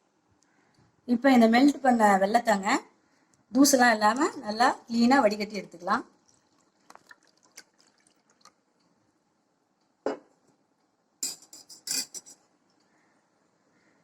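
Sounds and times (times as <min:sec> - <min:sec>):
kitchen utensils clinking: 0:11.2 - 0:12.4
kitchen utensils knocking: 0:11.2 - 0:12.4.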